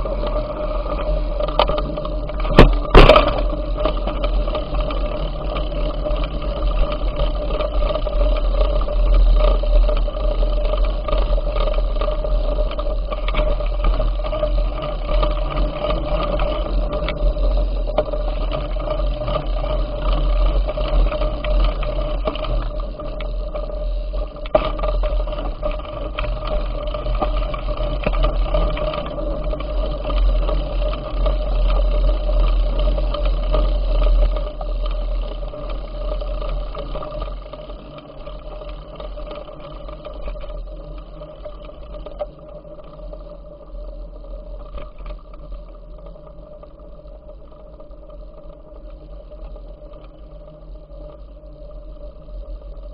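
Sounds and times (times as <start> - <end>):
steady whine: 0.0 - 52.9.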